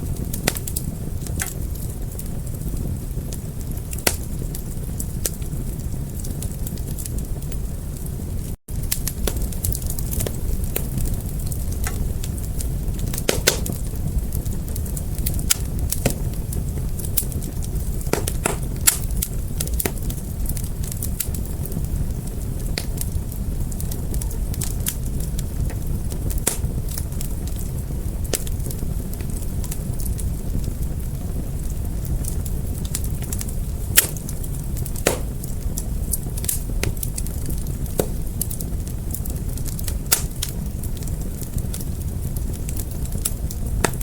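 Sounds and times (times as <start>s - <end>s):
fire crackling and popping: 0.0s - 44.0s
wood fire burning: 0.0s - 44.0s.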